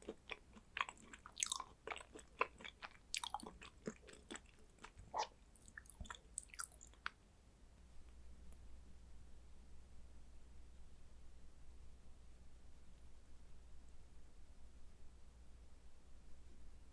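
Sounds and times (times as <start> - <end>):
chewing raw beef: 0.0 - 7.2
faint low hum: 0.0 - 16.9
mouth clicks: 5.1 - 7.1.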